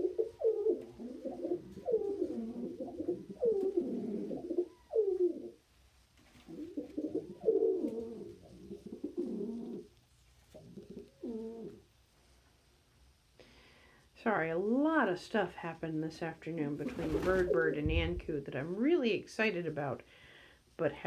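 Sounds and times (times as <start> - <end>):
pigeon cooing: 0.0 - 5.6, 6.4 - 9.9, 10.5 - 11.9.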